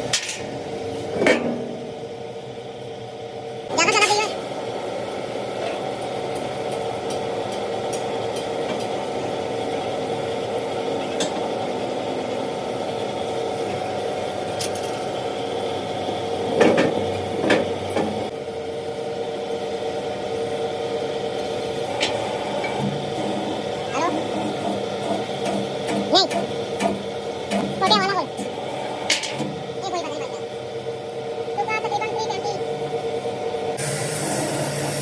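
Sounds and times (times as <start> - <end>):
machine humming: 3.7 - 35.0.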